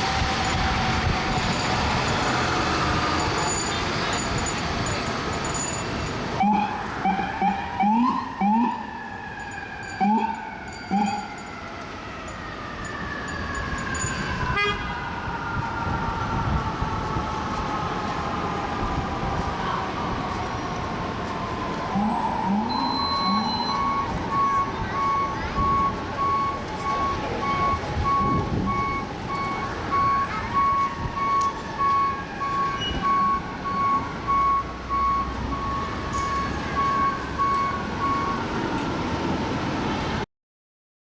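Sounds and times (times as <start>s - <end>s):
emergency sirens wailing: 0.0s - 5.4s, 6.2s - 40.2s
street traffic: 0.0s - 40.3s
electronic beep: 22.1s - 32.1s.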